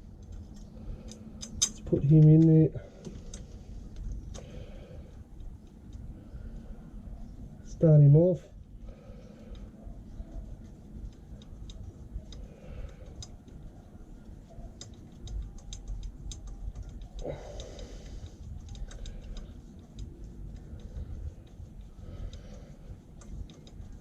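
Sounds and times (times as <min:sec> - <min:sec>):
light metallic clicks: 0:00.2 - 0:04.5.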